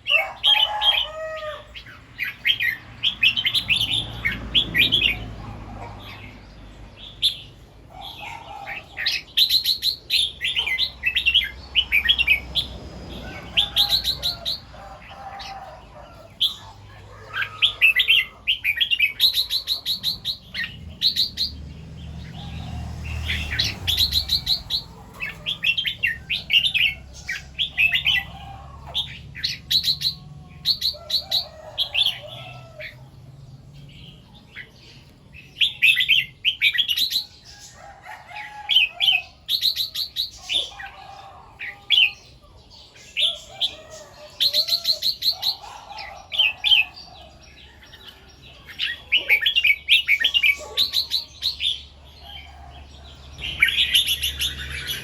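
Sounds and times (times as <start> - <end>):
bulbul singing warbled phrases: 15.8 - 32.6.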